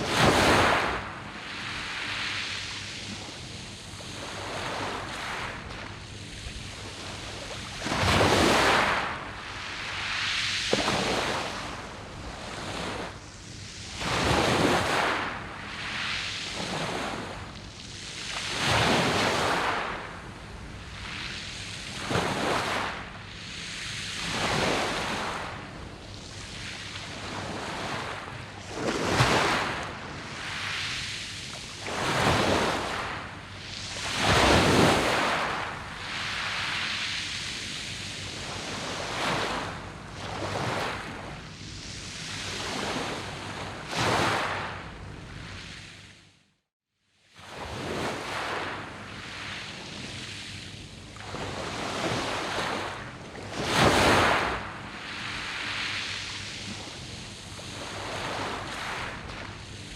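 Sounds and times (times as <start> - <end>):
waves breaking on pebbles: 0.0 - 11.8, 23.9 - 31.0, 31.6 - 41.4, 51.2 - 59.9.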